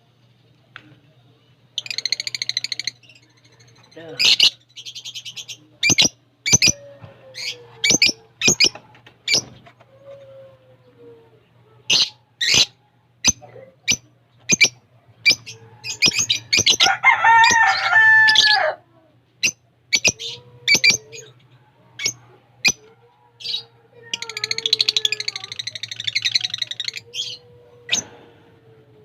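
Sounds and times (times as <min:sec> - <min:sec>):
small birds chirping: 0:00.2 - 0:18.5, 0:19.4 - 0:28.4
fast bird chattering: 0:04.0 - 0:06.8, 0:11.9 - 0:17.6, 0:23.4 - 0:27.4.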